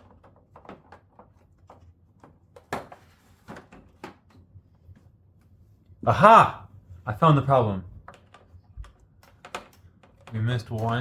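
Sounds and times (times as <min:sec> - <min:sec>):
plastic casing clicking and knocking: 0:00.0 - 0:04.5, 0:08.0 - 0:11.0.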